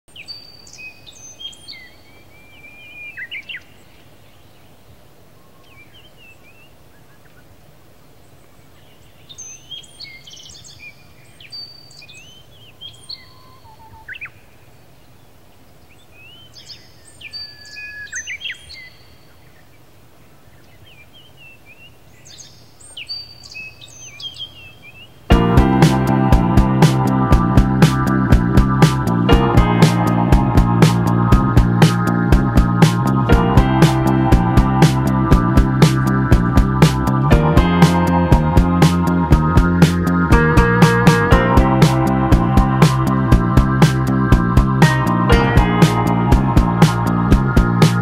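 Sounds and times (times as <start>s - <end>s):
songbirds chirping and singing: 0.1s - 7.5s, 8.4s - 14.5s, 15.2s - 25.8s.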